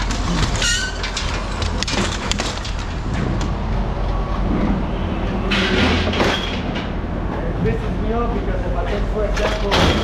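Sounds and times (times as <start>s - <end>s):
clanks and knocks: 0.0s - 3.5s, 5.5s - 7.0s, 9.3s - 10.0s.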